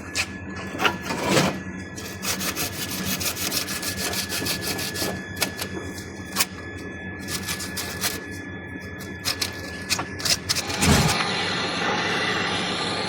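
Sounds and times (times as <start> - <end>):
rapid scraping strokes: 0.8 - 5.7, 7.2 - 8.4, 9.0 - 11.2.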